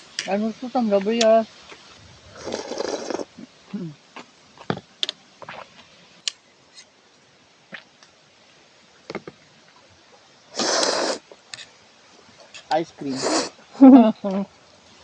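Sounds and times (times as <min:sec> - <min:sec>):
loud slurp of noodles: 0:02.4 - 0:03.3, 0:10.6 - 0:11.2, 0:13.1 - 0:13.6.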